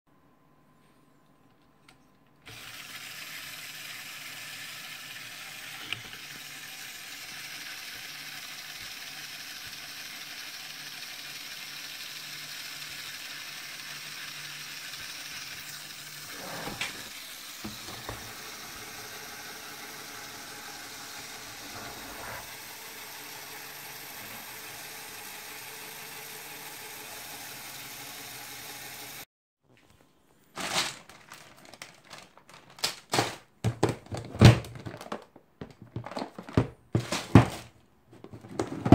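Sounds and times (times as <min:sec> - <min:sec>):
electric motor whirring gears: 0:05.6 - 0:29.2
plastic knocks: 0:33.6 - 0:38.9.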